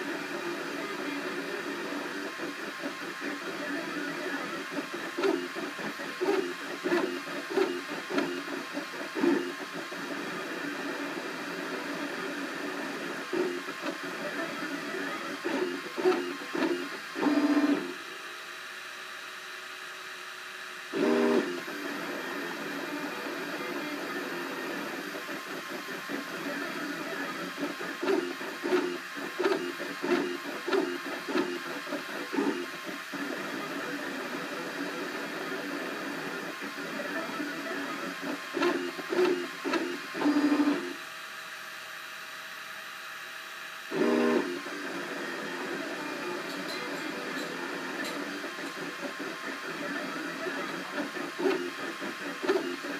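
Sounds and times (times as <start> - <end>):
steady machine hum: 0.0 - 41.4
stepper motors whining: 21.0 - 33.1.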